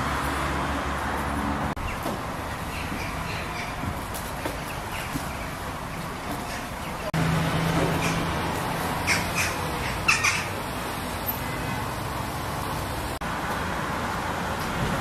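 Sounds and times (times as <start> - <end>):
bird calling: 1.8 - 7.1, 7.8 - 8.4, 9.0 - 10.7.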